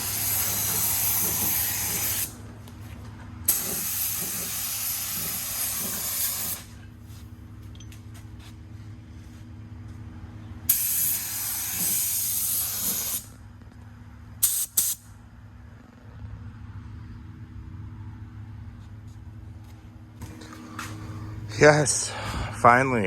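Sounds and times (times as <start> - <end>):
spray paint hissing: 0.0 - 2.4, 3.5 - 6.7, 10.7 - 13.3, 14.4 - 15.0
steady low hum: 0.0 - 23.0.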